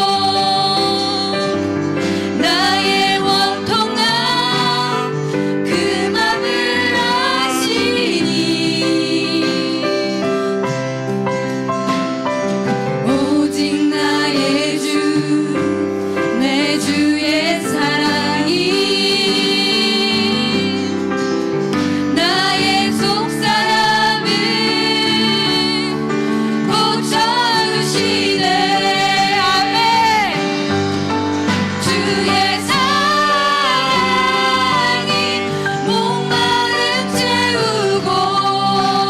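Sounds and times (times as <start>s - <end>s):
person singing with vibrato: 0.0s - 10.4s, 31.8s - 39.0s
sustained keyboard chords: 15.0s - 39.0s.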